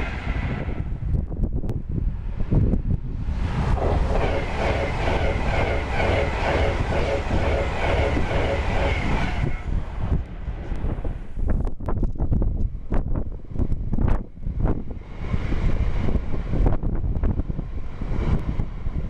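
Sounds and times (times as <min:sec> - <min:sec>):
wind rumble on microphone: 0:00.0 - 0:19.0
train wheels clattering on track: 0:03.8 - 0:09.7.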